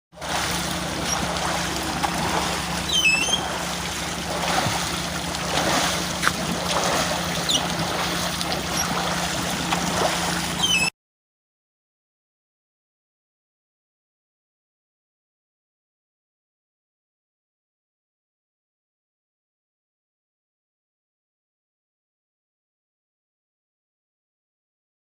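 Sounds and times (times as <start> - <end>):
water rushing in stream: 0.2 - 10.9
short high chirps: 2.9 - 3.6.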